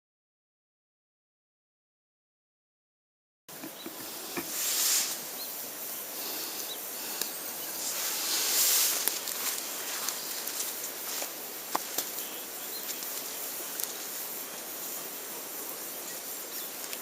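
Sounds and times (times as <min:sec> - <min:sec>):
campfire hissing: 0:03.5 - 0:17.0
wood crackling pops: 0:09.0 - 0:12.2.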